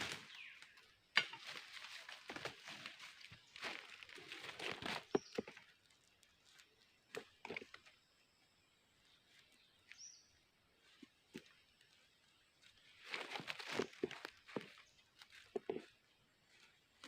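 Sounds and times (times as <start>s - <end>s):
rustling: 1.2s - 7.9s, 10.8s - 17.0s.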